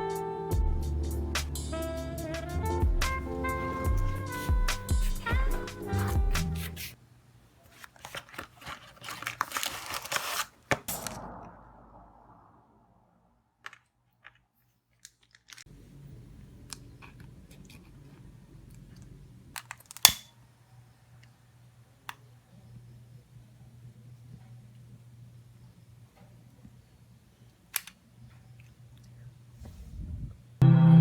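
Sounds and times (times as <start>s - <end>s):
rustling and crinkling: 3.2s - 11.0s, 13.6s - 20.1s
faint low hum: 15.7s - 31.0s.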